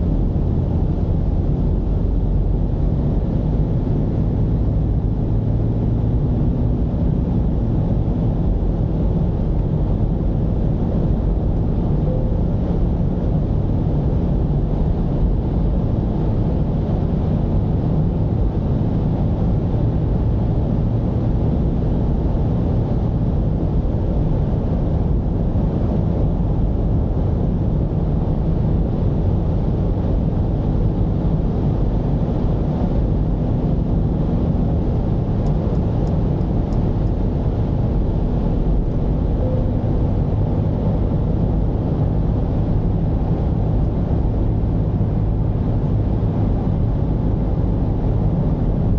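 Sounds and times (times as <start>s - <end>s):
road and tyre noise: 0.0s - 48.9s
van engine drone: 0.0s - 48.9s.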